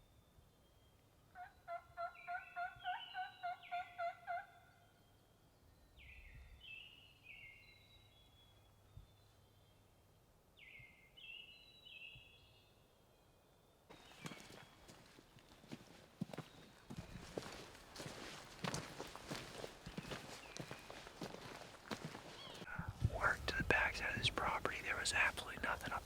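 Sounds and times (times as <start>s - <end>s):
songbirds singing: 0.1s - 26.0s
turkey gobbling: 1.4s - 4.6s.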